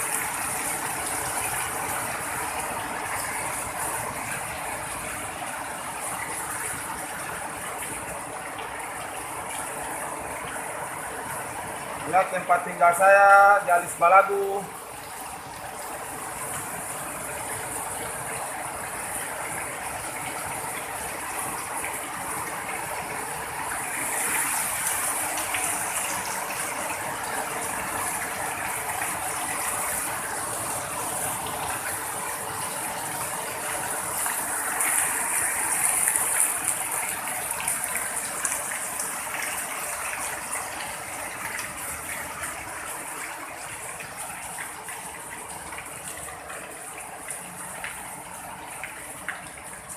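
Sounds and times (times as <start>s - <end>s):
heavy rain pouring: 0.0s - 49.9s.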